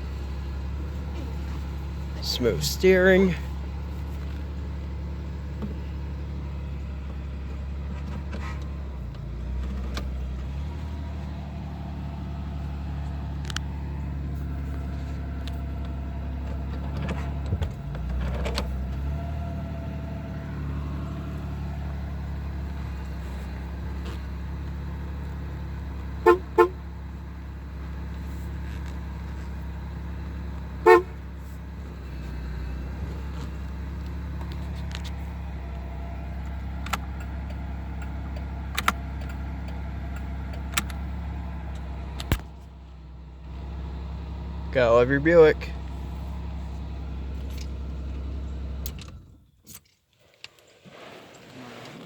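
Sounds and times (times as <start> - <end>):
car engine low drone: 0.0 - 50.0
car horn toots: 26.2 - 26.9, 30.8 - 31.2.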